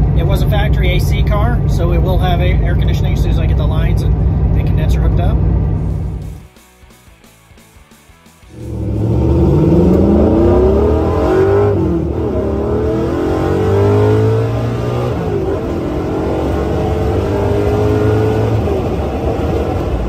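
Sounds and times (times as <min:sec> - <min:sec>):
car engine accelerating: 0:08.5 - 0:20.0.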